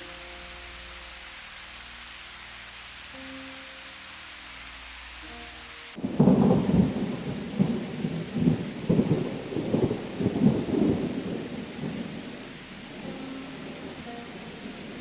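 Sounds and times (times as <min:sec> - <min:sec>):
steady rain: 0:00.0 - 0:15.0
thunder rumbling: 0:06.0 - 0:15.0.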